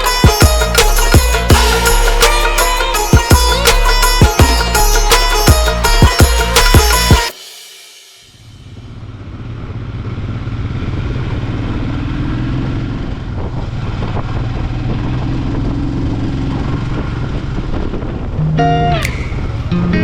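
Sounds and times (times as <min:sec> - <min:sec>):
wind and road noise: 0:08.4 - 0:20.0
motorcycle engine running: 0:08.6 - 0:18.4.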